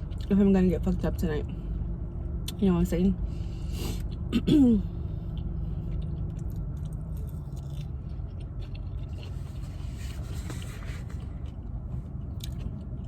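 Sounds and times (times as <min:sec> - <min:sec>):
car air conditioning hum: 0:00.0 - 0:13.0
faint chewing: 0:05.1 - 0:13.0.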